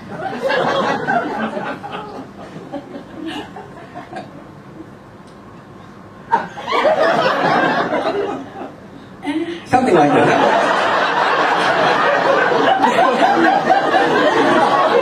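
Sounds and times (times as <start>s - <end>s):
audience laughter: 0.0s - 4.4s, 6.3s - 8.8s, 10.0s - 15.0s.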